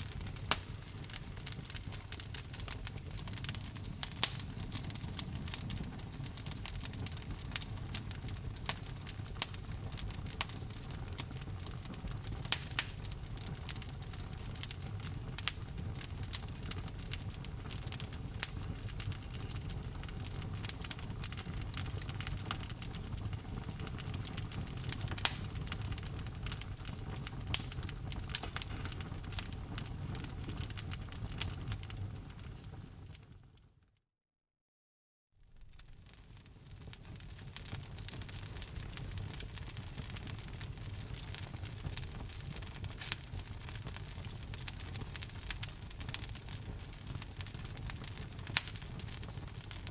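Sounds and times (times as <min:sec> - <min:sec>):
logs crackling and popping: 0:00.0 - 0:33.3, 0:35.5 - 0:49.9
low rumble of flame: 0:00.0 - 0:33.6, 0:35.4 - 0:49.9.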